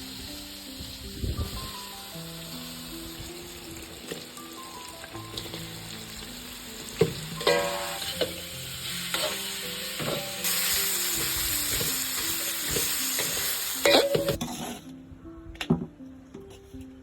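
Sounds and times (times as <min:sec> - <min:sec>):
food sizzling in a pan: 0:00.0 - 0:14.4
spatula scraping a pan: 0:07.4 - 0:08.4, 0:12.8 - 0:14.9.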